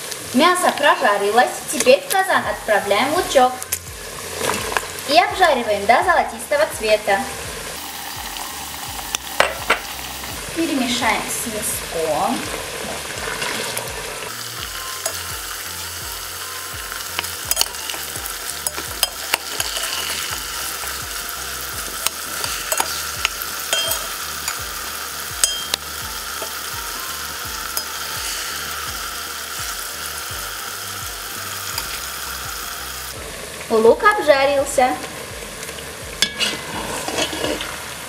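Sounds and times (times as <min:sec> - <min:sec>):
onions and beef sizzling in oil: 0:00.0 - 0:38.0
metal spoon scraping a pot: 0:18.6 - 0:20.8, 0:21.9 - 0:24.6, 0:36.2 - 0:37.8.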